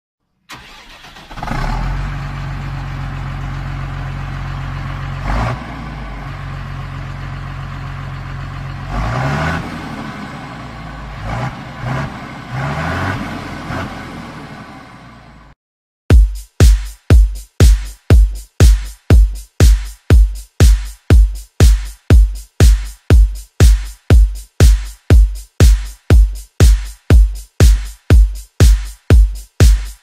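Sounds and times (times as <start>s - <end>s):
tractor engine revving: 0.5s - 15.6s.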